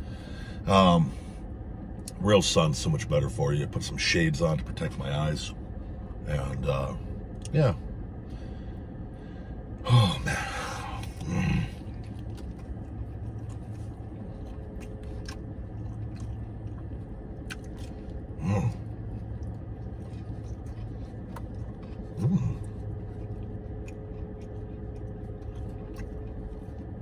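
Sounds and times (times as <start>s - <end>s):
car cabin hum: 0.0s - 27.0s
closed-mouth hums: 6.9s - 27.0s
man chewing: 7.2s - 27.0s
wet mouth clicks: 14.7s - 18.2s.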